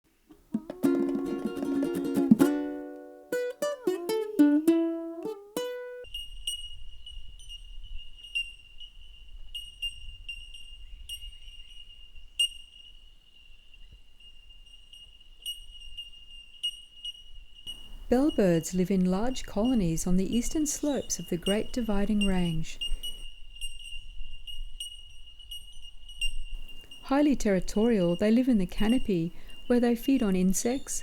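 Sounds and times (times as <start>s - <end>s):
plucked string music: 0.3s - 6.1s
birds calling high tink notes: 6.0s - 31.0s.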